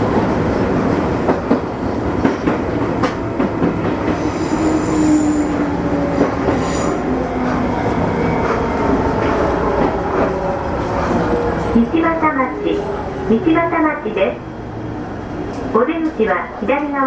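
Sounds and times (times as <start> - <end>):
train wheel-on-rail rumble: 0.0 - 17.0
high wheel squeals: 4.2 - 5.6.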